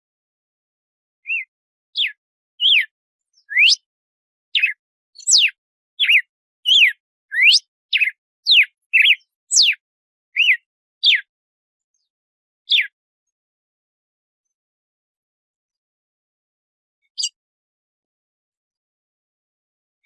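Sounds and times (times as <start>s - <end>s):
bird singing whistled notes: 1.2s - 3.9s, 4.5s - 11.3s, 12.7s - 13.0s, 17.1s - 17.4s.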